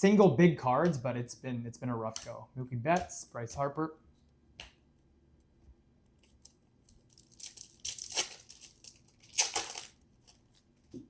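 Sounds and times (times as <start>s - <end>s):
wrapper torn and crinkled: 6.2s - 10.8s.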